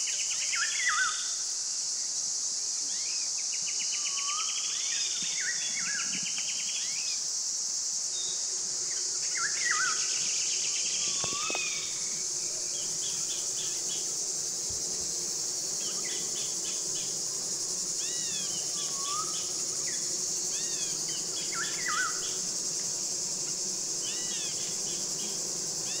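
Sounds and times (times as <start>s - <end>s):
insects chorus: 0.0s - 26.0s
honeybees humming: 8.3s - 26.0s.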